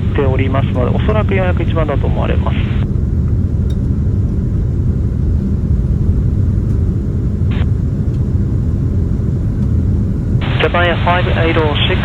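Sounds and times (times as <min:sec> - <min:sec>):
airliner cabin rumble: 0:00.0 - 0:12.0
radio squelch burst: 0:10.4 - 0:12.0.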